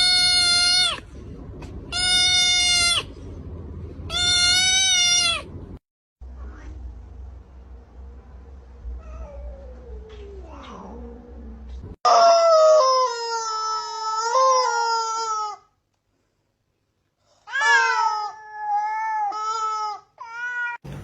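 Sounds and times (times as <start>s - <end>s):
low hum: 0.0s - 12.0s
cat yowling: 17.5s - 20.8s.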